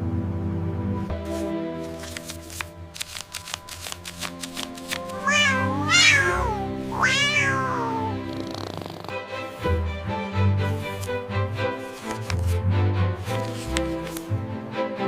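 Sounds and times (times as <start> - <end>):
soft background music: 0.0 - 15.0
cat meowing: 5.2 - 8.2.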